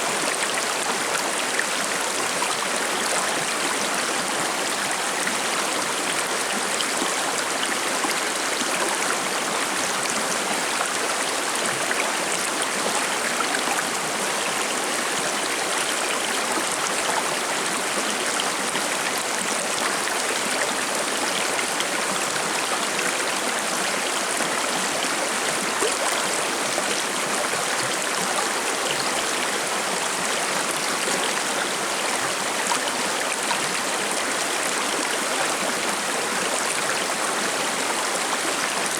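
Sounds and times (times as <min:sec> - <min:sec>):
stream babbling over rocks: 0:00.0 - 0:38.9.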